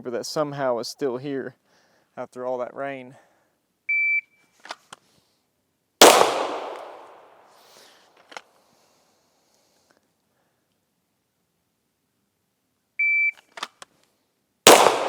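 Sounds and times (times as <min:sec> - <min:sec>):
pistol shot with echo: 0:06.0 - 0:07.4, 0:14.7 - 0:15.0.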